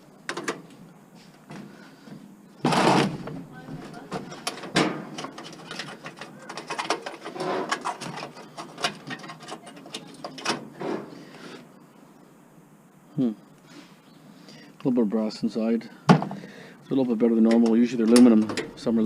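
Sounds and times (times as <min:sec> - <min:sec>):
small metal parts clicking and rattling: 0:04.0 - 0:10.6.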